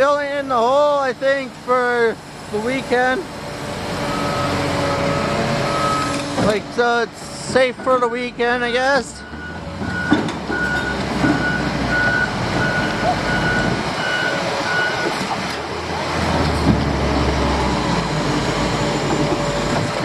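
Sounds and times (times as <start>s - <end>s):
heavy engine rumble: 0.0s - 20.0s
reversing alarm beeping: 4.1s - 6.2s, 9.2s - 15.2s.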